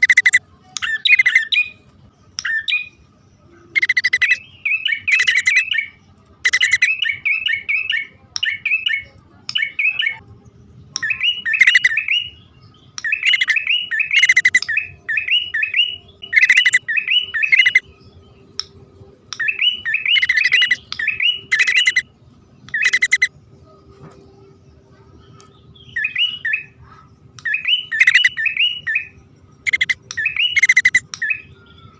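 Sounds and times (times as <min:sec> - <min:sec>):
bird chattering calls: 0:00.0 - 0:01.8, 0:03.6 - 0:10.2, 0:11.0 - 0:12.4, 0:13.0 - 0:17.9, 0:19.4 - 0:22.1, 0:22.7 - 0:23.3, 0:25.3 - 0:31.6.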